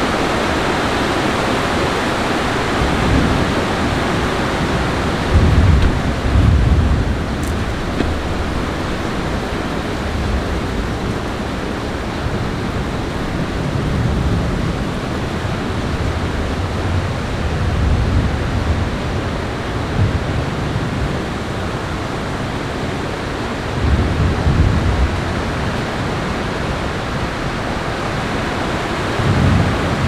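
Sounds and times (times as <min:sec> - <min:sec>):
low thunder rumble: 0:02.7 - 0:21.3.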